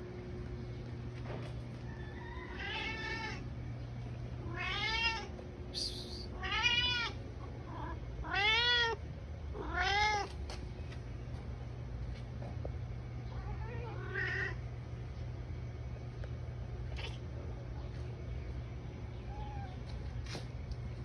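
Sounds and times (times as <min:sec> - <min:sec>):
cat meowing: 0:02.5 - 0:03.4, 0:04.4 - 0:05.3, 0:06.4 - 0:07.2, 0:07.8 - 0:09.0, 0:09.6 - 0:10.3, 0:13.4 - 0:14.6.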